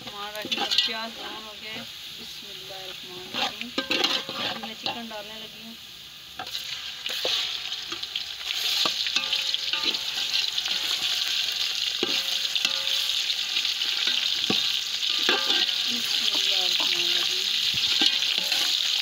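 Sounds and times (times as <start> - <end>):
metal spoon scraping a pot: 0.0 - 1.9, 3.2 - 5.0, 8.6 - 13.2, 13.8 - 19.0
chicken sizzling in hot oil: 0.0 - 19.0.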